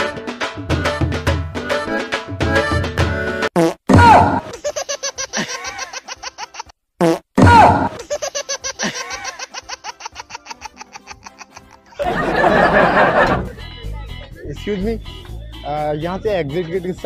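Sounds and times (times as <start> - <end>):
comedy fart sound effect: 3.5 - 4.5, 7.0 - 8.0.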